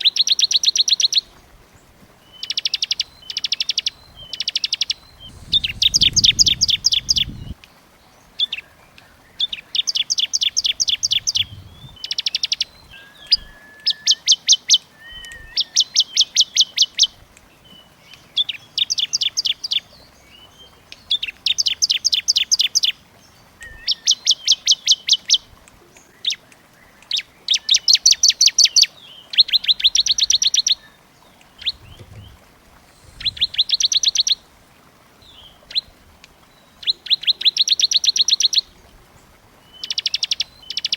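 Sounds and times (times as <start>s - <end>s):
bird singing rapid trills: 2.4s - 7.6s, 9.4s - 17.0s, 23.6s - 25.3s.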